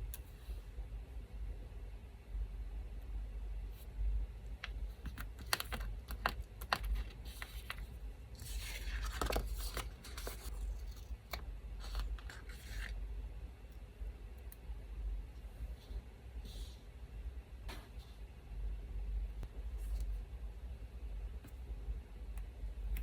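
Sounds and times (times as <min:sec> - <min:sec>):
electric fan hum: 0:00.0 - 0:23.0
paper being handled: 0:05.0 - 0:12.9.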